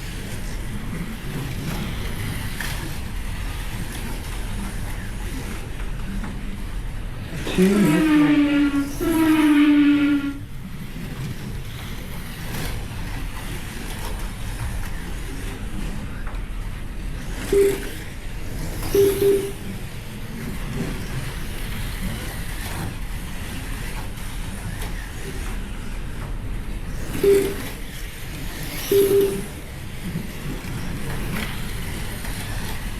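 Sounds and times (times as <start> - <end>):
slot cars lapping a track: 0.0 - 32.9
short electronic beeps: 17.5 - 18.0, 18.8 - 19.8, 27.2 - 27.8, 28.8 - 29.6.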